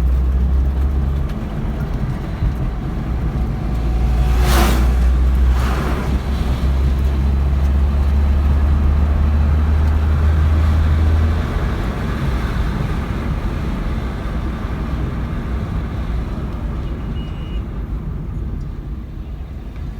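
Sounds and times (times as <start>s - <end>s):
heavy low rumble: 0.0s - 10.3s
car engine running: 0.0s - 16.8s.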